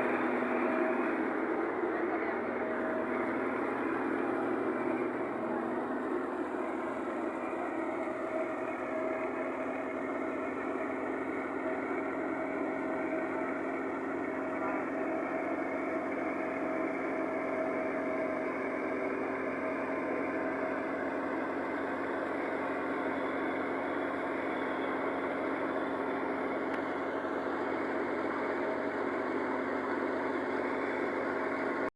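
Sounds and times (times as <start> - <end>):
thresher mechanical hum: 0.0 - 31.9
tractor diesel engine running: 0.0 - 31.9.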